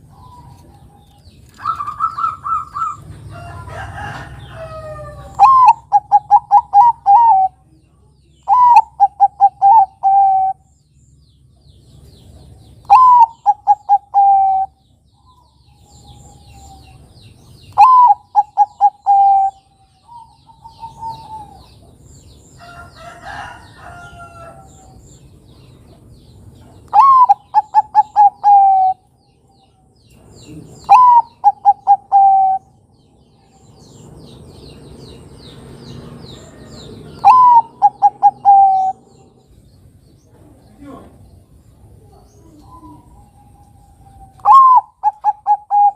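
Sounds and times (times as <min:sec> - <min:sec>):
dove cooing: 0:01.6 - 0:03.2, 0:04.8 - 0:07.7, 0:08.5 - 0:10.6, 0:12.9 - 0:14.8, 0:17.7 - 0:21.9, 0:26.9 - 0:29.1, 0:30.4 - 0:32.8, 0:37.0 - 0:39.4, 0:42.1 - 0:45.9
faint bird calls: 0:04.1 - 0:10.7, 0:12.1 - 0:21.9, 0:26.6 - 0:32.8, 0:36.3 - 0:39.6, 0:40.2 - 0:45.9.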